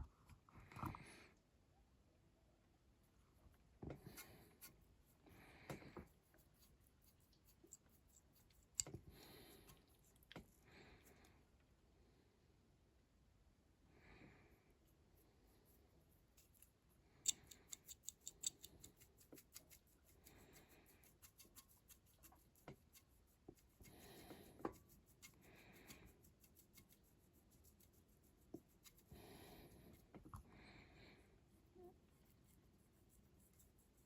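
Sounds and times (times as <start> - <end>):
soft rubbing or breathing: 3.9 - 11.5, 18.9 - 34.0.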